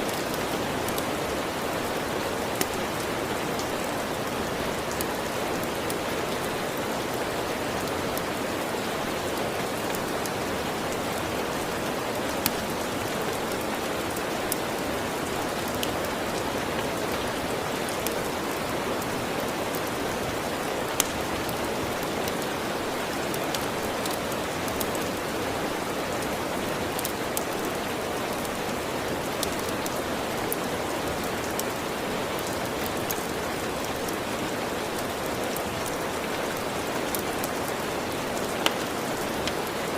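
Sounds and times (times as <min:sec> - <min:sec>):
steady rain: 0:00.0 - 0:39.9
wood fire crackling and popping: 0:02.5 - 0:03.0, 0:20.8 - 0:22.4, 0:35.5 - 0:39.7.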